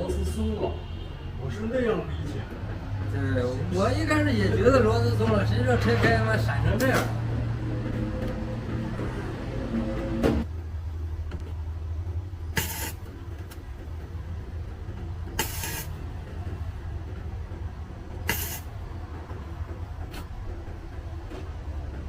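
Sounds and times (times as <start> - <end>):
steady low hum: 0.8 - 22.0
welder bursts: 12.6 - 13.1, 15.4 - 15.9, 18.2 - 18.7.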